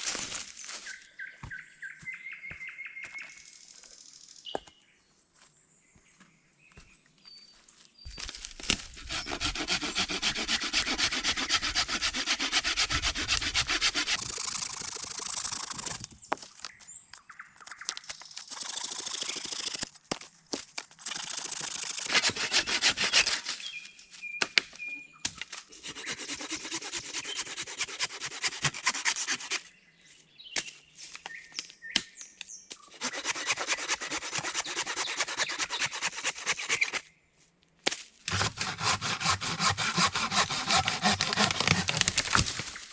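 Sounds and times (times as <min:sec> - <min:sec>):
hand saw cutting wood: 0:08.1 - 0:16.8, 0:17.6 - 0:20.0, 0:20.8 - 0:23.7, 0:25.7 - 0:29.7, 0:32.8 - 0:37.0, 0:38.3 - 0:42.8.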